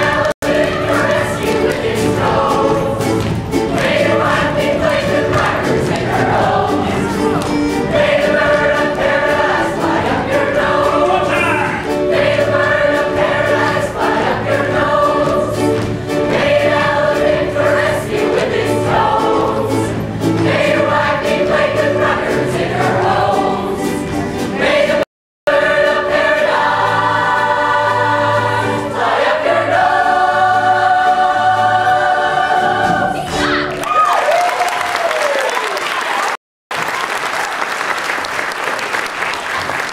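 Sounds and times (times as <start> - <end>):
group singing with band: 0.0 - 33.3.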